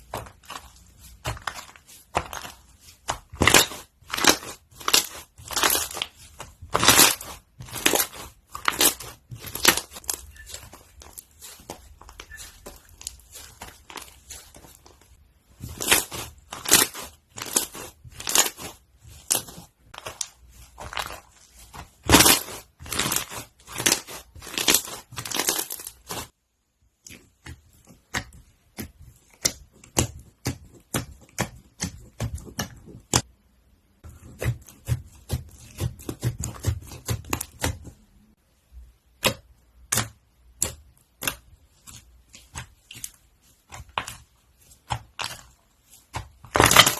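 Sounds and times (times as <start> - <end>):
crunchy slime crackling: 0.0 - 26.3, 39.8 - 46.9.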